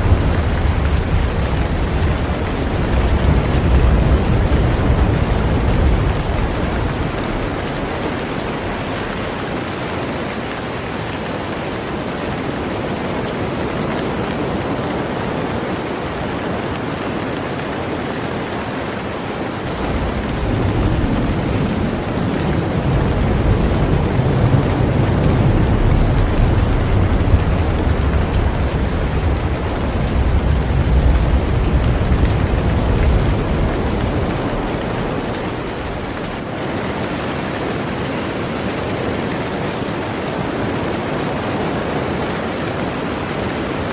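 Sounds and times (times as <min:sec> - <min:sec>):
deep low rumble: 0:00.0 - 0:09.2, 0:19.7 - 0:36.4
heavy rain on a boat: 0:00.0 - 0:43.9.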